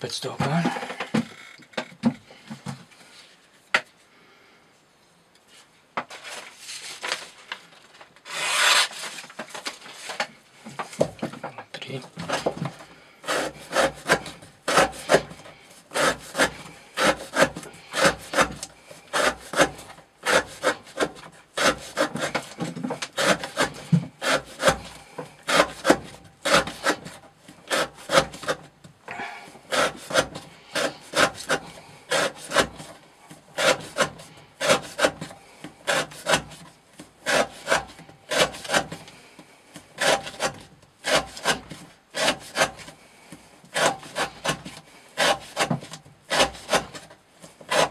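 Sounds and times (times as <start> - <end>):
knife slicing through rope: 8.2 - 9.2, 13.3 - 28.6, 29.7 - 32.9, 33.6 - 35.3, 35.9 - 36.6, 37.2 - 39.0, 40.0 - 42.9, 43.7 - 47.1, 47.7 - 47.9.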